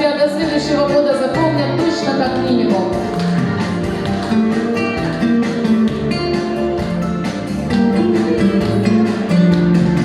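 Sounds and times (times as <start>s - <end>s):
bass line: 0.4s - 10.0s
strummed guitar chords: 2.4s - 10.0s.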